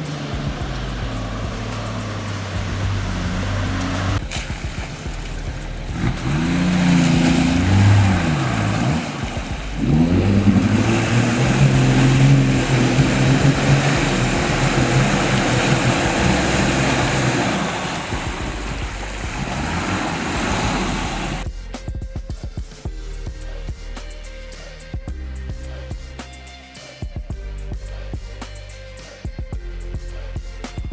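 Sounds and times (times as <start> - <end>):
diesel engine revving: 0.0 - 21.5.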